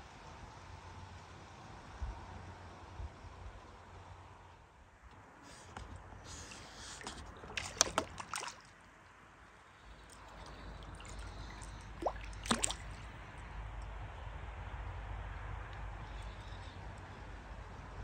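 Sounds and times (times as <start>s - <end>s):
low steady rumble: 0.0s - 18.0s
water drips and small splashes: 5.7s - 14.2s.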